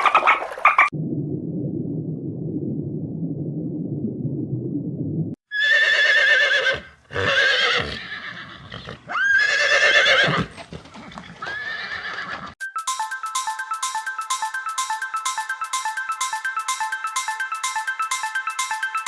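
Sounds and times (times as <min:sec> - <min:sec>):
low rumbling noise: 0:01.0 - 0:05.4
horse whinnying: 0:05.5 - 0:12.6.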